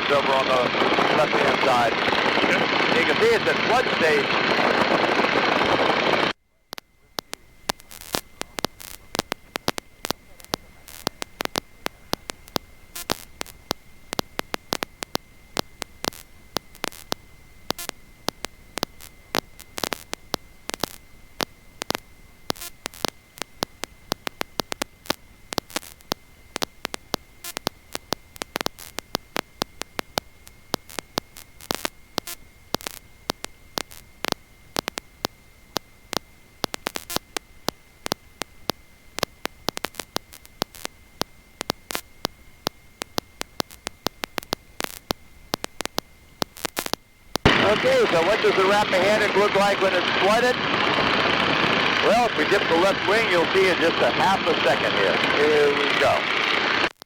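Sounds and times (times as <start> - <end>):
biplane engine and wind: 0.0 - 6.3, 47.4 - 56.9
crackling electrical static: 0.0 - 57.0
faint high whine: 0.0 - 57.0.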